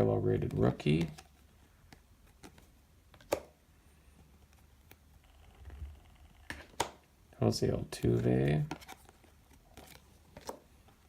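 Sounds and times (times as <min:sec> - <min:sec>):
cards clicking and snapping: 0:00.5 - 0:03.6, 0:08.6 - 0:10.7.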